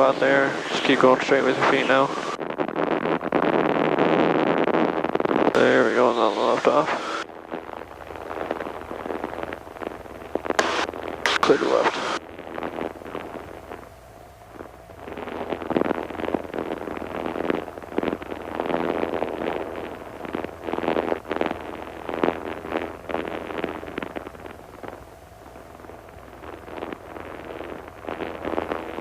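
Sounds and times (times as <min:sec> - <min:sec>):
airplane engine drone: 0:00.0 - 0:02.4.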